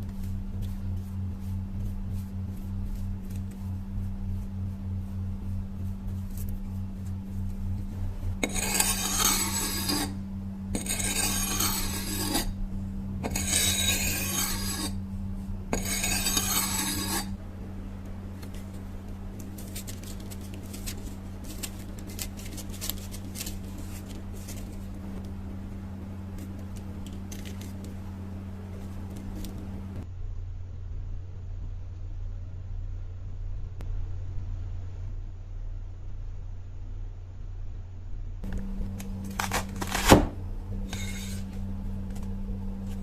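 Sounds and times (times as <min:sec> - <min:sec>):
steady low hum: 0:00.0 - 0:43.0
knife scraping on abrasive: 0:08.4 - 0:12.6, 0:13.2 - 0:15.1, 0:15.7 - 0:17.4, 0:19.4 - 0:25.1, 0:40.8 - 0:41.6.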